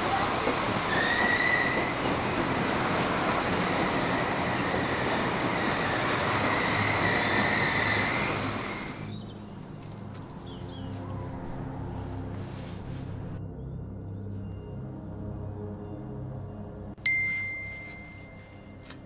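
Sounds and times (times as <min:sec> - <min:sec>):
train rumbling on rails: 0:00.0 - 0:13.4
wheels squealing on track: 0:00.1 - 0:09.1.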